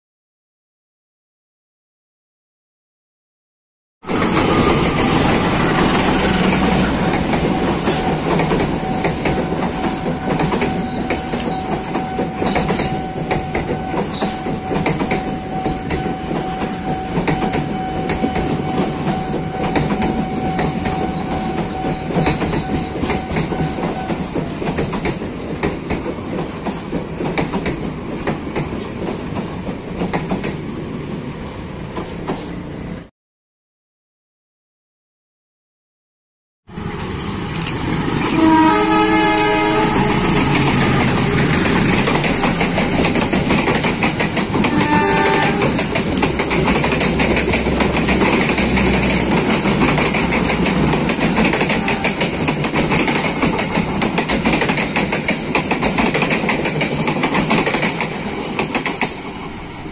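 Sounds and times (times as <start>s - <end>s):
train wheels clattering over rail joints: 4.1s - 30.7s, 39.7s - 59.5s.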